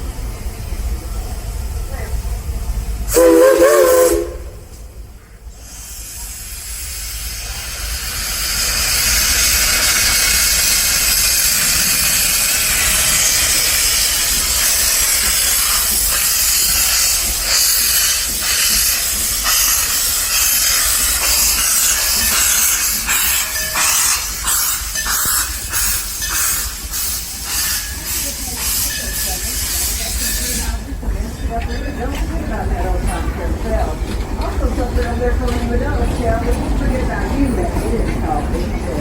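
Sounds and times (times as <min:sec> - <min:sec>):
steam hissing: 0:00.1 - 0:31.1
steam locomotive whistle: 0:03.1 - 0:04.6.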